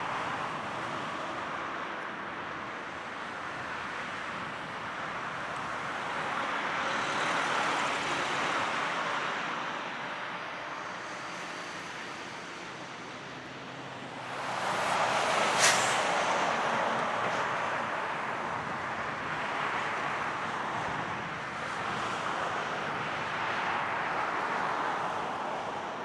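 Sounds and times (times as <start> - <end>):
distant vehicle noise: 12.2 - 18.8.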